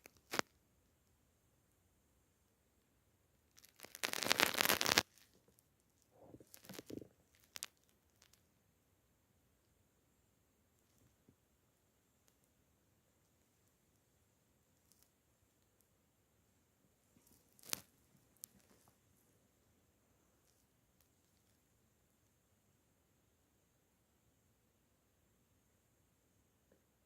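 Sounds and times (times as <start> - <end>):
cat scratching and rustling: 3.6 - 5.3.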